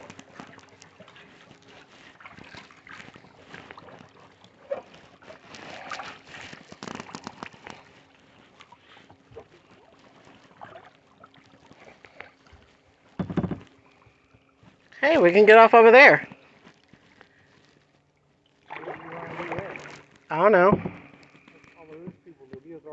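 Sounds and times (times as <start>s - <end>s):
paddle splashing in water: 0.0s - 15.0s, 16.2s - 21.8s
small knocks: 13.2s - 13.8s.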